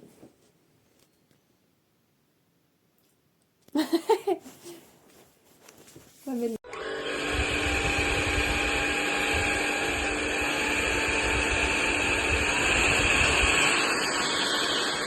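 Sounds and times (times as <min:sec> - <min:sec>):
vacuum cleaner motor whine: 0:06.7 - 0:15.0
rushing airflow hiss: 0:07.7 - 0:15.0.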